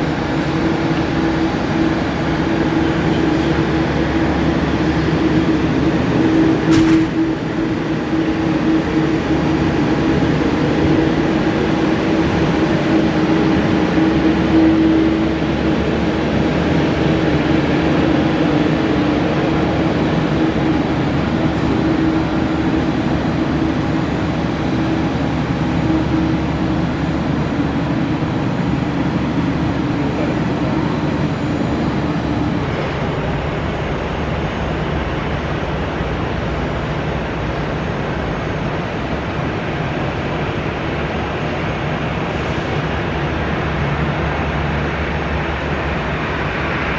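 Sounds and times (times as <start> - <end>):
jet engine roaring: 0.0 - 46.9.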